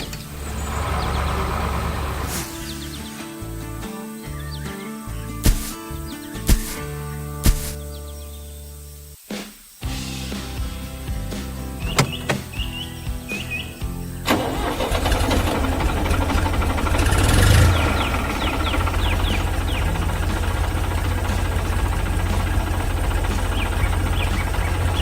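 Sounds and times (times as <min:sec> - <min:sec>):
vehicle engine starting and running: 0:00.0 - 0:03.2, 0:14.3 - 0:25.0
bird chirps: 0:00.0 - 0:03.4, 0:11.8 - 0:14.2, 0:17.2 - 0:25.0.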